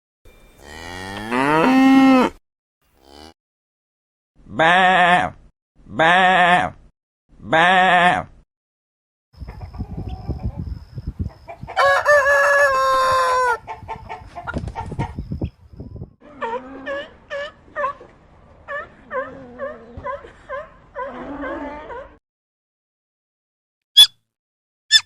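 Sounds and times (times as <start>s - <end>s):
chicken clucking: 9.4s - 10.7s, 13.6s - 15.2s
rooster crowing: 11.8s - 13.6s.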